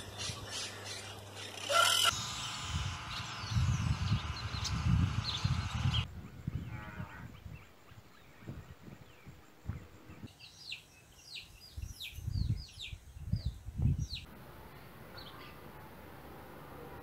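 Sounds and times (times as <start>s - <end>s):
low microphone rumbles: 2.7s - 7.6s
bird chirping: 3.0s - 6.6s, 7.4s - 14.3s.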